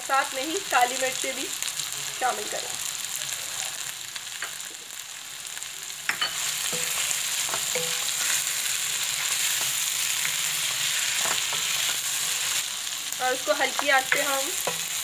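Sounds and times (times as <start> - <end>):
meat sizzling in hot oil: 0.0 - 15.0
spatula stirring in a pan: 6.1 - 15.0.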